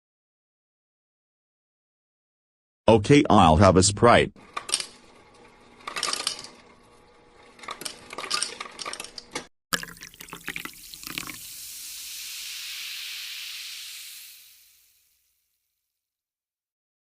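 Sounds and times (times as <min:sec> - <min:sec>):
cup clicking and clinking: 0:09.7 - 0:11.5
soda pouring with fizzing hiss: 0:09.7 - 0:15.4.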